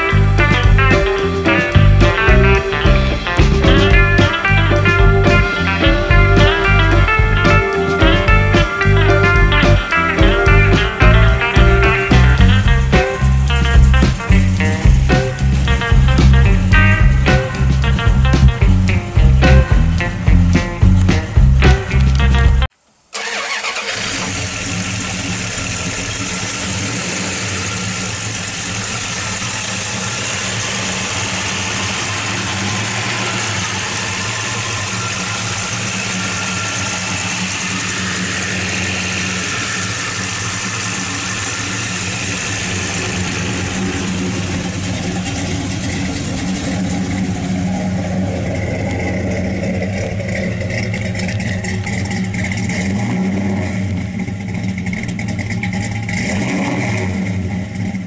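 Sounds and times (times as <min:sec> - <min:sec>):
brief music: 0:00.0 - 0:22.7
car engine idling: 0:00.0 - 0:58.0.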